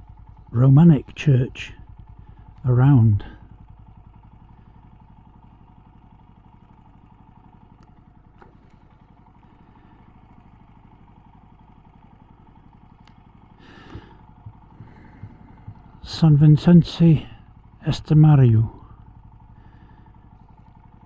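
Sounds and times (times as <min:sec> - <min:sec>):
motorcycle engine idling: 0:00.0 - 0:21.0
faint clicks: 0:07.7 - 0:09.0, 0:12.8 - 0:16.2.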